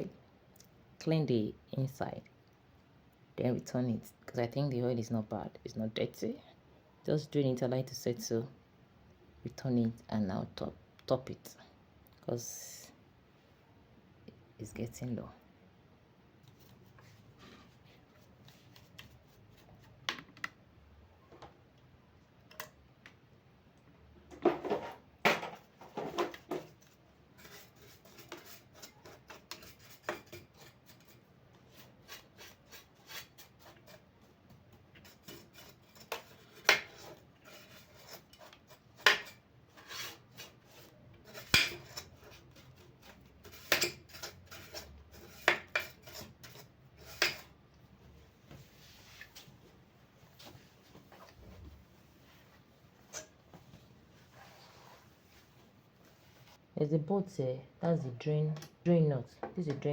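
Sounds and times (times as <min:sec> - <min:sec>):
rubbing and scraping: 0:24.4 - 0:34.4, 0:35.0 - 0:47.6.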